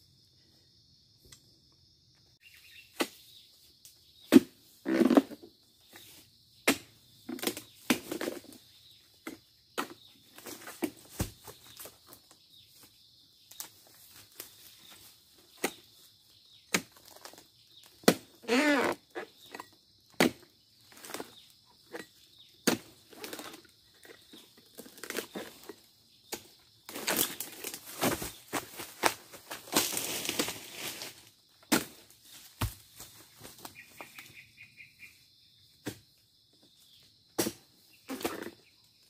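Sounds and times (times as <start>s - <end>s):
rustling through fronds: 26.9s - 31.4s.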